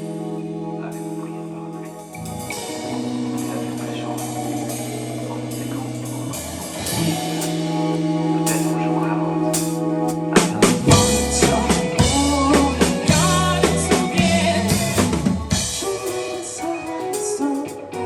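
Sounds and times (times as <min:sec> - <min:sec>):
guitar and bass chords: 0:00.0 - 0:18.0
cymbals: 0:01.8 - 0:18.0
drum hits: 0:10.5 - 0:16.0.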